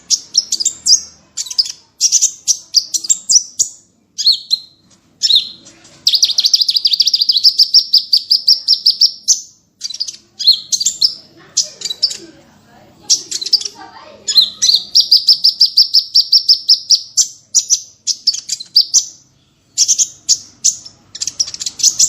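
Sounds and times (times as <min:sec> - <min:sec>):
songbird singing: 0:00.0 - 0:12.4, 0:13.0 - 0:22.0.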